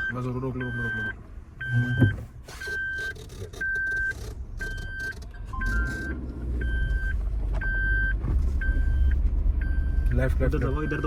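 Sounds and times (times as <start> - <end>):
reversing beeper: 0.0 - 2.2, 4.6 - 11.0.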